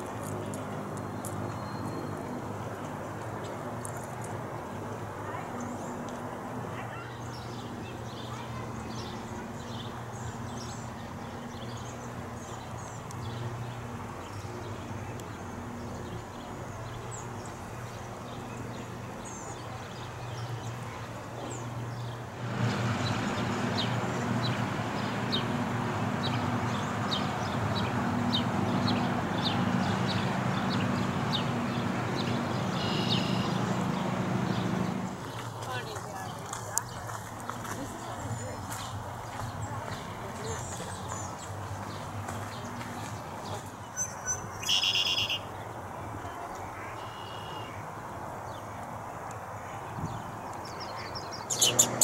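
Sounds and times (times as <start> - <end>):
small birds chirping: 6.8 - 45.6, 50.0 - 52.0.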